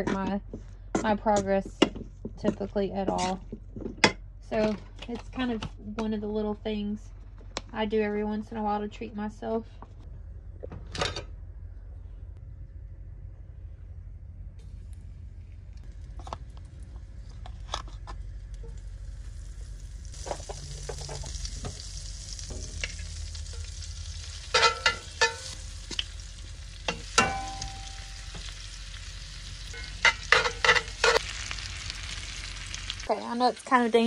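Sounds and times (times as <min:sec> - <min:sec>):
chicken frying in oil: 0:18.6 - 0:34.0.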